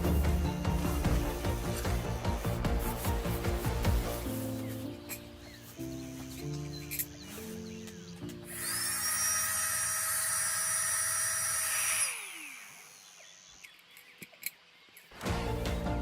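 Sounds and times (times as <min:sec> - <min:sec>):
music: 0:00.0 - 0:08.8, 0:15.2 - 0:16.0
small motor whining: 0:08.5 - 0:14.5.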